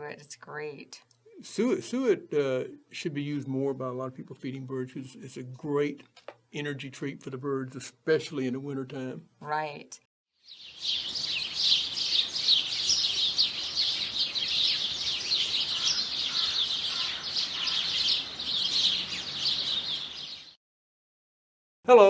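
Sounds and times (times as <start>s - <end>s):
small birds chirping: 10.4s - 20.6s.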